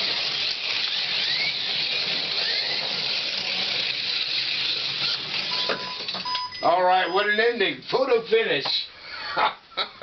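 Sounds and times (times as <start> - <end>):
slot car motors whining: 0.0 - 7.4.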